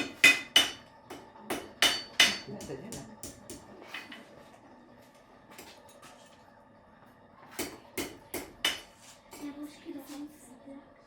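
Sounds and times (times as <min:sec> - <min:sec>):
hammer striking horseshoe on anvil: 0:00.0 - 0:03.6, 0:07.6 - 0:08.9.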